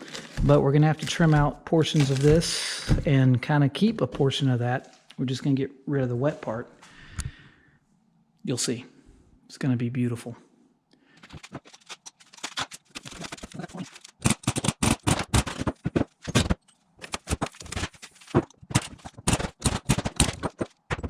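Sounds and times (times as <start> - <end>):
knocks and scrapes on wood: 11.2 - 21.0.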